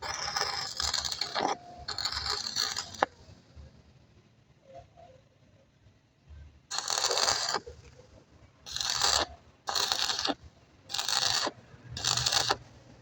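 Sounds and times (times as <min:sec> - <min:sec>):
hand scraping on metal: 0:00.0 - 0:03.1, 0:06.7 - 0:07.7, 0:08.7 - 0:12.6.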